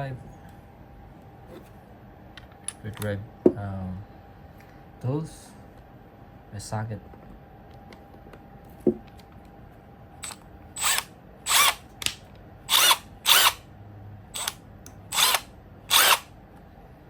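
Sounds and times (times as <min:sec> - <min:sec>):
power drill motor whirring: 0:10.2 - 0:13.6, 0:14.4 - 0:16.3.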